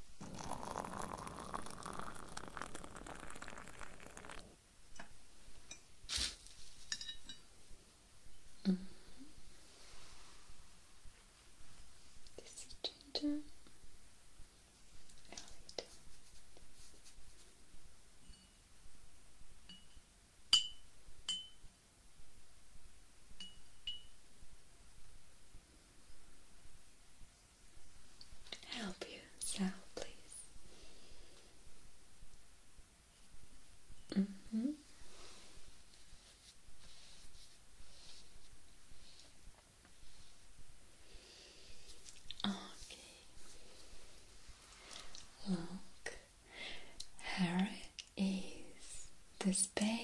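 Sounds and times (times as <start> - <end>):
tea pouring into a cup: 0.1 - 4.6
teacup and spoon clinking: 0.2 - 4.4, 20.6 - 21.6, 23.4 - 24.1.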